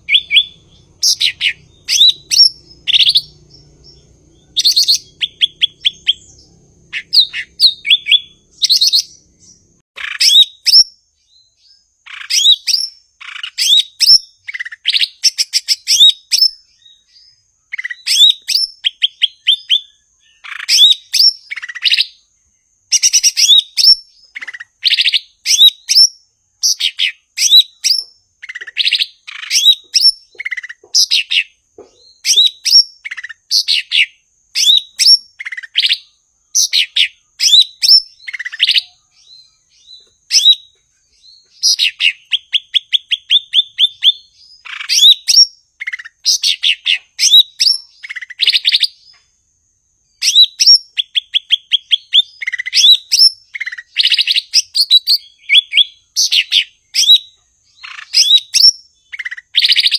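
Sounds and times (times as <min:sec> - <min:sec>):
bird singing chirps and trills: 0:00.0 - 0:59.9.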